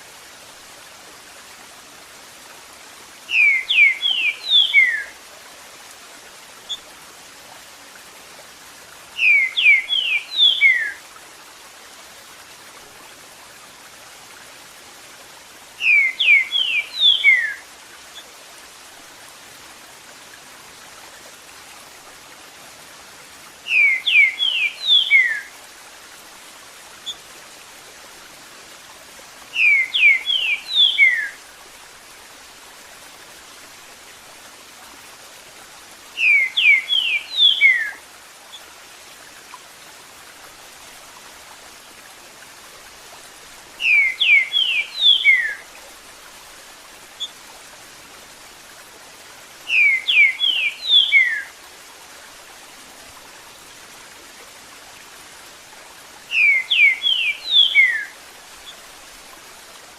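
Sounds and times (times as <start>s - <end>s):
running water: 0.0s - 59.9s
bird whistling song: 3.3s - 5.1s, 9.2s - 11.0s, 15.8s - 17.6s, 23.7s - 25.5s, 29.6s - 31.4s, 36.2s - 38.0s, 43.8s - 45.6s, 49.7s - 51.5s, 56.3s - 58.2s.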